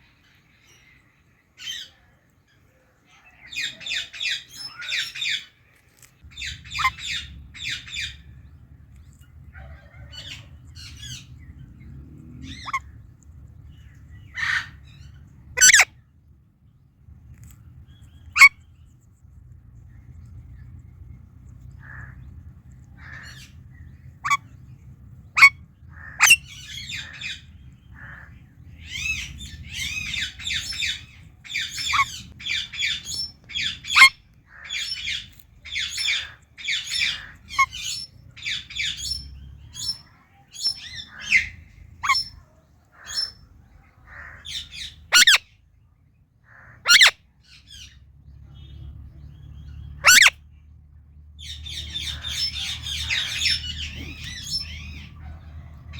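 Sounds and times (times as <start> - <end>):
parakeet chirps and squawks: 6.3 - 8.4, 9.0 - 11.6, 12.4 - 13.0, 13.7 - 16.0, 18.0 - 18.7, 21.7 - 45.6, 46.5 - 50.5, 51.4 - 55.4
parakeet screeches: 6.4 - 7.8, 15.6 - 15.9, 26.1 - 26.4, 45.1 - 45.4, 46.8 - 47.2, 50.0 - 50.4.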